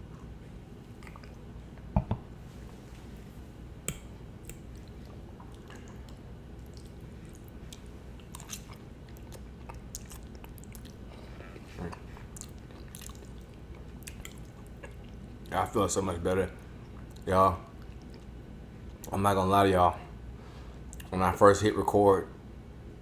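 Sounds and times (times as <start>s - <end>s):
chewing and wet mouth sounds: 0.0s - 1.9s, 3.9s - 15.6s, 16.5s - 19.1s, 20.9s - 21.1s
sharp thumps: 2.0s - 2.3s.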